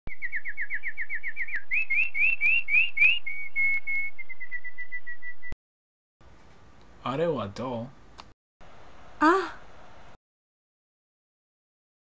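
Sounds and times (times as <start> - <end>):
songbird singing whistled notes: 0.1 - 5.6.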